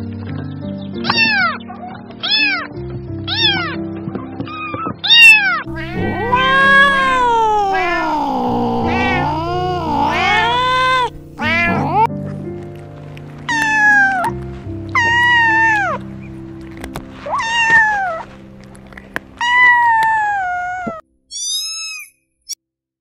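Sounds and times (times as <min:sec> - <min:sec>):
background music: 0:00.0 - 0:20.9
cat meowing: 0:01.0 - 0:01.6, 0:02.2 - 0:02.7, 0:03.3 - 0:03.8, 0:04.6 - 0:12.1, 0:13.5 - 0:16.0, 0:17.2 - 0:18.3, 0:19.4 - 0:22.1.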